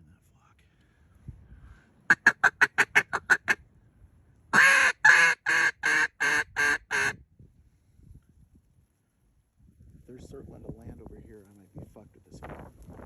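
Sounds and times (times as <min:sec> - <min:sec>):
duck call quacking: 0:02.1 - 0:03.6, 0:04.5 - 0:07.2.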